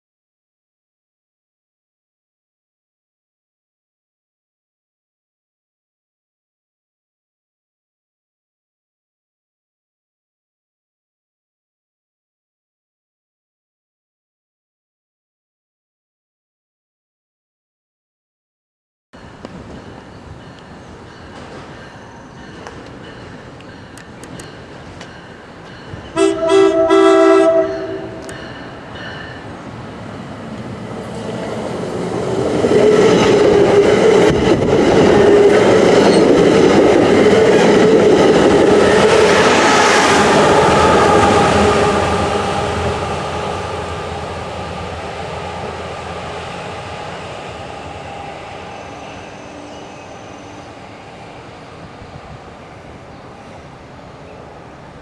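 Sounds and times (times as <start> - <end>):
train passing: 19.2 - 55.0
train horn blast: 26.2 - 28.4, 40.1 - 45.9.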